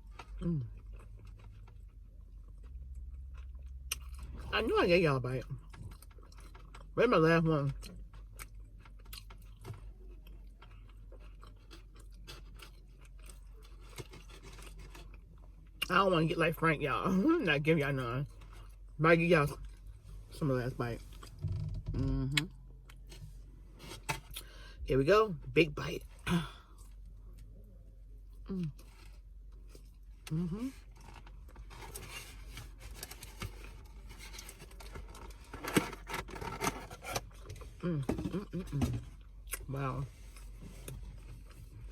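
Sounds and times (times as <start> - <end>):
chewing food: 0.0 - 4.5, 5.5 - 7.0, 7.8 - 15.9.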